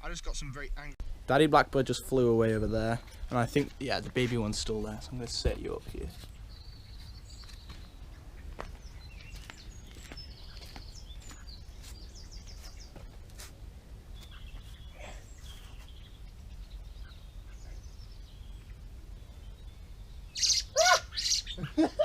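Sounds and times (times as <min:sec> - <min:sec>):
blackbirds chirping faintly: 0:01.5 - 0:22.0
loud bird squawk: 0:20.3 - 0:21.8.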